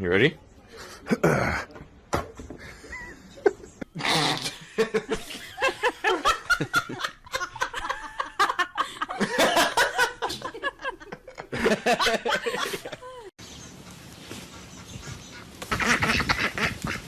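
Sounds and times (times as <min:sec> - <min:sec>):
people laughing hard: 0:04.6 - 0:13.3.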